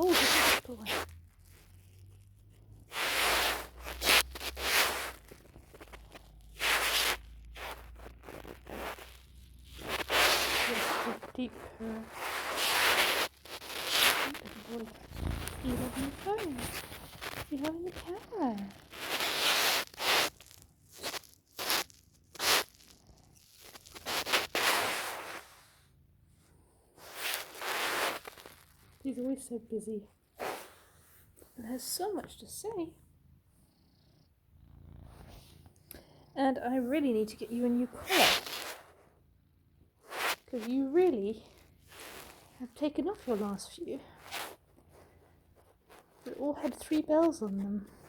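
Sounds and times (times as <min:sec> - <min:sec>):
fabric rustling: 0:00.0 - 0:22.8
cat purring: 0:00.0 - 0:48.0.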